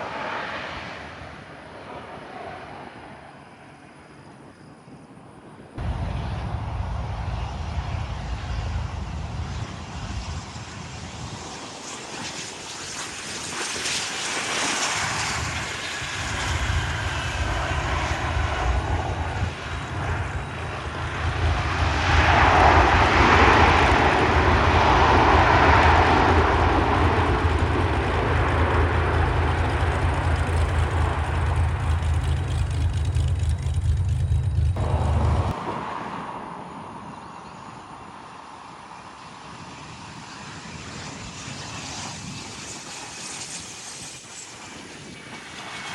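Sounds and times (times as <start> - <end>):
jet engines passing by: 0.0 - 45.9
heavy low rumble: 5.8 - 11.4, 16.2 - 36.0
falling whine: 5.8 - 38.0.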